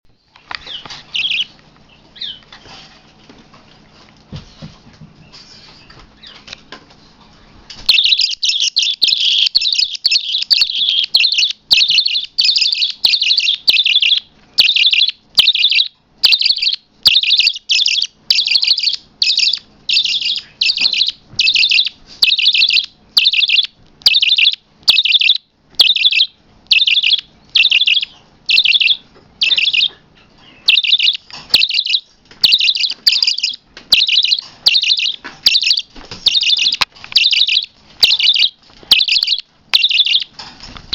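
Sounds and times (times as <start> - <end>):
parrot shrill chirps: 7.9 - 30.0, 30.6 - 40.3.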